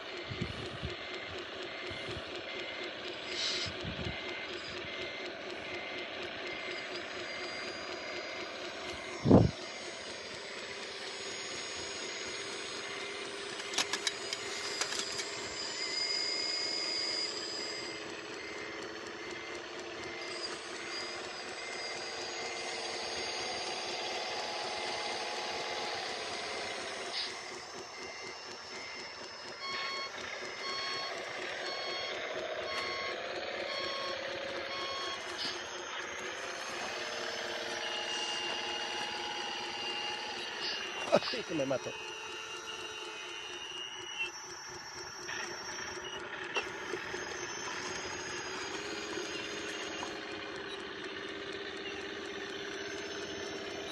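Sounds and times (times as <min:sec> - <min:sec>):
motor whine: 0:00.0 - 0:53.9
pulsing tone: 0:00.0 - 0:53.9
reversing beeper: 0:00.0 - 0:53.9
sharp clicks: 0:13.5 - 0:15.4.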